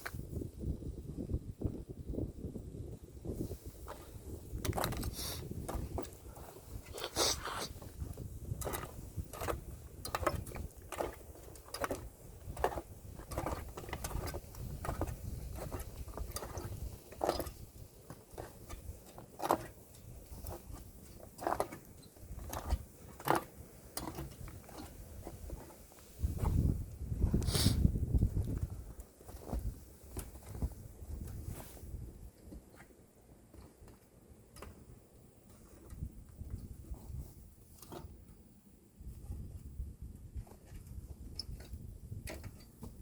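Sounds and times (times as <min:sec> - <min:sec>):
wind rumble on microphone: 0:00.0 - 0:32.9, 0:34.6 - 0:43.0
footsteps on a trail: 0:03.3 - 0:34.1.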